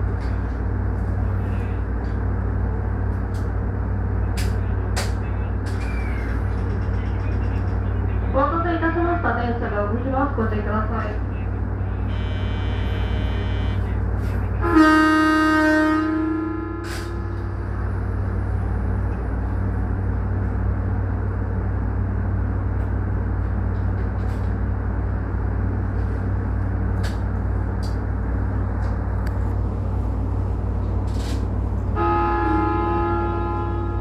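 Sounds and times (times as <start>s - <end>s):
train low rumble: 0.0s - 34.0s
train horn: 12.0s - 17.6s, 32.0s - 34.0s.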